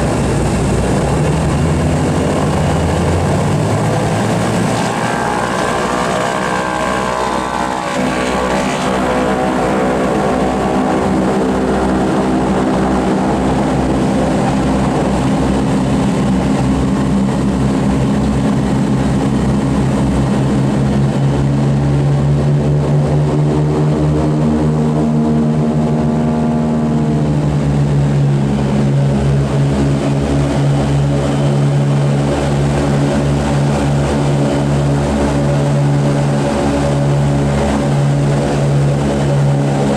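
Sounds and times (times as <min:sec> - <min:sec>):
radial piston engines with propellers: 0:00.0 - 0:39.9.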